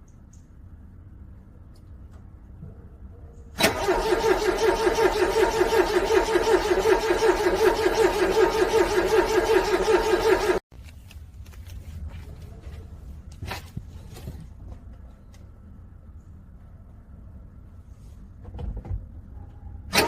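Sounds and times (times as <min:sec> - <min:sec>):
car starter motor cranking: 0:03.6 - 0:10.6.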